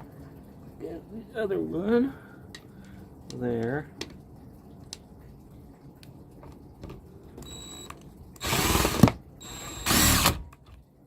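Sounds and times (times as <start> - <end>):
impact driver driving screw: 8.4 - 10.4.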